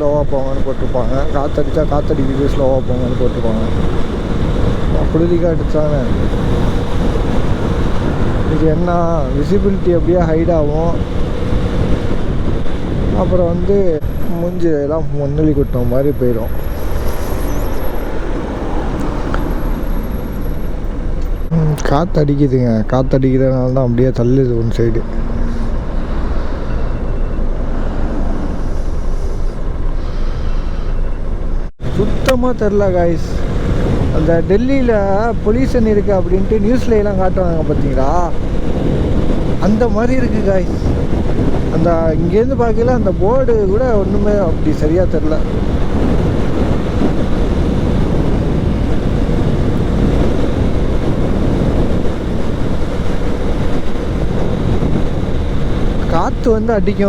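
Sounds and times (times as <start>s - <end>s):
motorcycle running: 0.0s - 13.7s
road noise: 0.0s - 57.0s
wind buffeting microphone: 0.0s - 57.0s.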